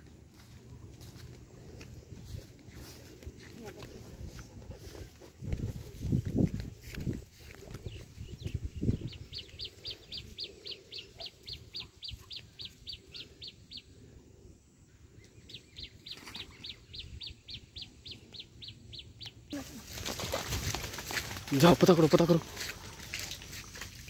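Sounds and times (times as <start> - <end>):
bird chirping: 7.4 - 14.0, 14.8 - 19.6.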